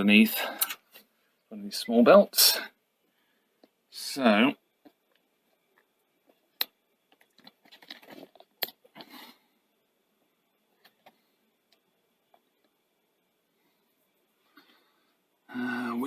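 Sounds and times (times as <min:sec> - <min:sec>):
scraping and rustling: 0:07.2 - 0:09.1.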